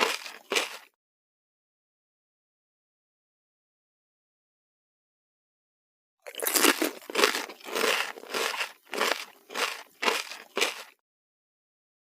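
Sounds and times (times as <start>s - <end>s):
crunchy food chewing: 0.0s - 0.9s, 6.3s - 11.0s.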